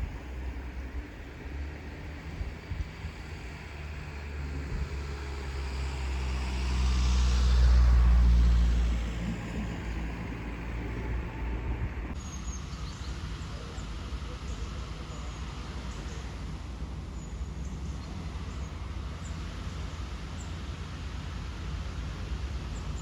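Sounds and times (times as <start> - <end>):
motor vehicle driving past: 3.2 - 12.2.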